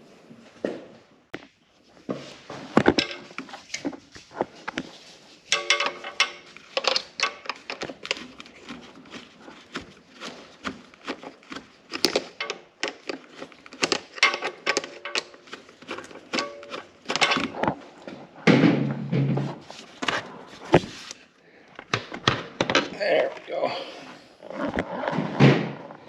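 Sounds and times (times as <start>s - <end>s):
pliers clicking on clamps: 5.5s - 17.6s.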